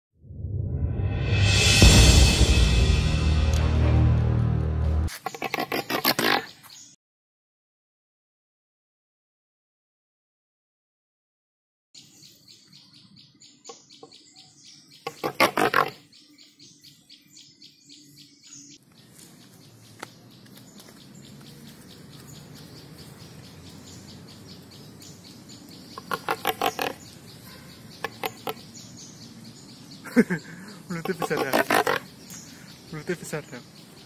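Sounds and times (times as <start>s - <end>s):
birds chirping: 5.0s - 7.0s, 12.0s - 34.0s
bird rapid calls: 5.1s - 7.0s, 13.7s - 16.2s, 19.9s - 34.0s.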